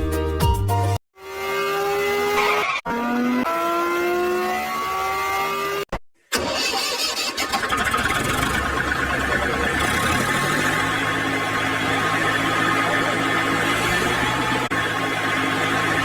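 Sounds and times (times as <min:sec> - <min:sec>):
rough pulsing engine running: 0:06.4 - 0:16.0
engine whine revving up: 0:07.6 - 0:16.0.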